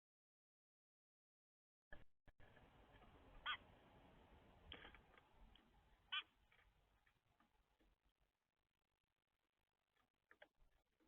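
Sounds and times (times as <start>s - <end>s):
faint outdoor background noise: 2.4s - 11.0s.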